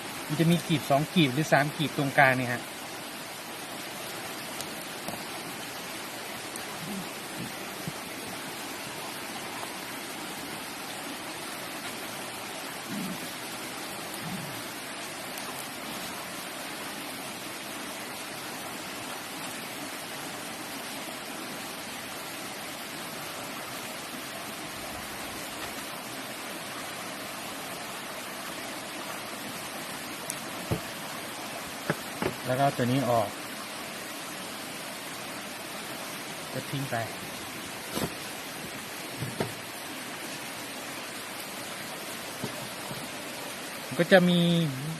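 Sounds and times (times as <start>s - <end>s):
rushing water hiss: 0.0s - 44.9s
soft knocks: 30.6s - 30.9s, 31.8s - 32.4s, 39.1s - 39.6s.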